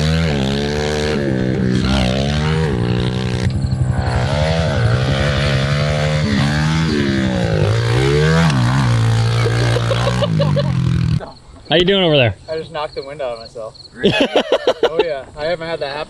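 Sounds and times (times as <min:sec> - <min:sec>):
motorbike engine revving: 0:00.0 - 0:11.2.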